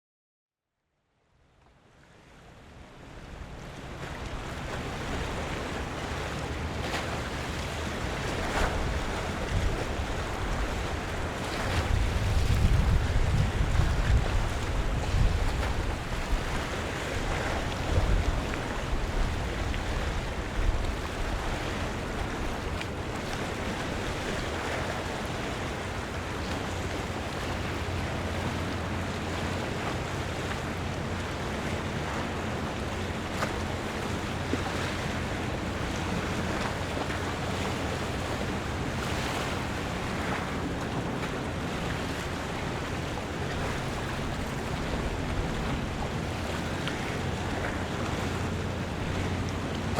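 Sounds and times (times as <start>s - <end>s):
water lapping: 1.9s - 49.9s
wind buffeting microphone: 4.4s - 49.9s.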